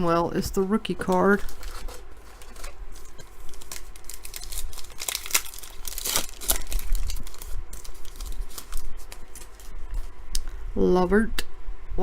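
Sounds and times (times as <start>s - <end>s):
trading cards rustling: 0.8s - 10.2s.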